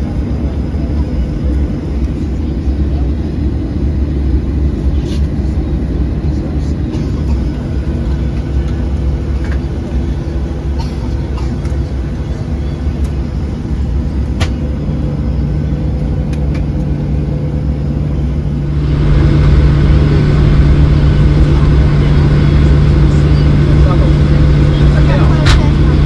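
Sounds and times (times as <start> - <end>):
airplane cabin engine hum: 0.0 - 26.0.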